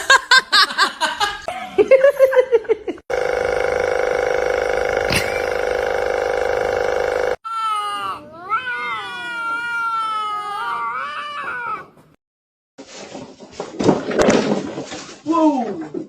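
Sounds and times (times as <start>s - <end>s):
cat meowing: 7.5s - 12.0s.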